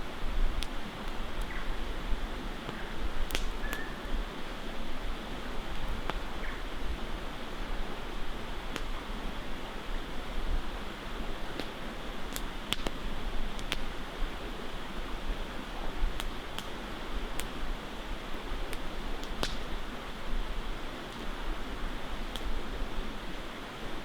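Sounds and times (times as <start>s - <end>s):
campfire crackling and popping: 0.2s - 2.0s, 2.6s - 3.9s, 5.0s - 6.6s, 8.6s - 9.2s, 10.9s - 20.2s, 21.0s - 22.8s.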